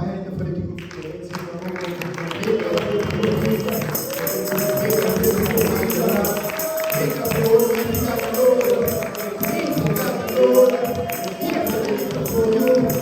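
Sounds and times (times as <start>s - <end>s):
hand claps: 0.8s - 13.0s
voices singing worship music: 2.1s - 13.0s
tambourine beat: 2.8s - 13.0s.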